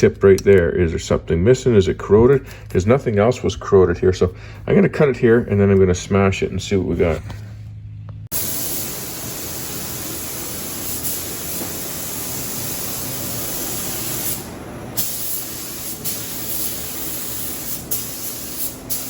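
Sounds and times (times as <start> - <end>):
gas torch flame hissing: 8.3 - 19.0.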